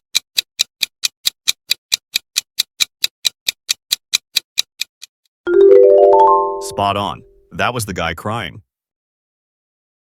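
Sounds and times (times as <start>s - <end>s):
clock-like timer ticking: 0.0s - 5.1s.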